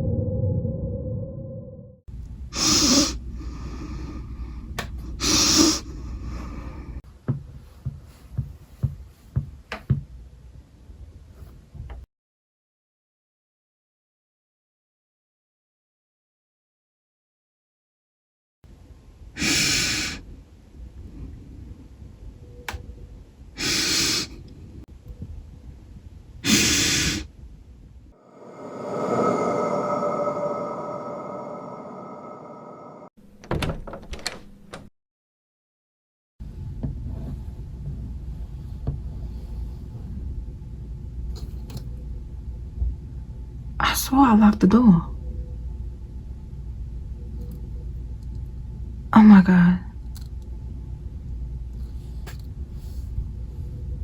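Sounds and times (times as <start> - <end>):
low rumble: 0.0 - 2.6, 27.6 - 33.1
heavy breaths: 2.6 - 9.6, 23.6 - 24.5, 28.2 - 33.1
soft footsteps: 7.1 - 10.2
rising drone with held tones: 28.2 - 33.1.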